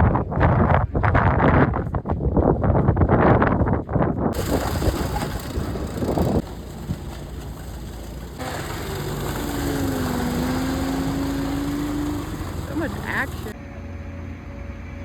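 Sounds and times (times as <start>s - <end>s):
wind rushing over microphone: 0.0s - 7.4s
steady motor hum: 4.4s - 15.0s.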